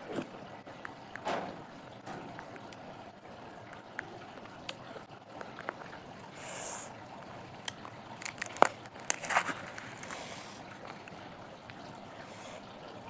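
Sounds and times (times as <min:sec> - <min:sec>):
chewing crunchy food: 0:04.6 - 0:11.8.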